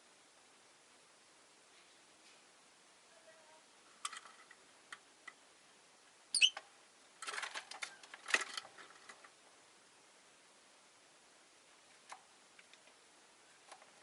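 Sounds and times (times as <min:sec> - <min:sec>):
clicking and rustling: 0:04.0 - 0:05.4, 0:06.6 - 0:09.4, 0:13.6 - 0:14.0
bird chirp: 0:06.3 - 0:06.6.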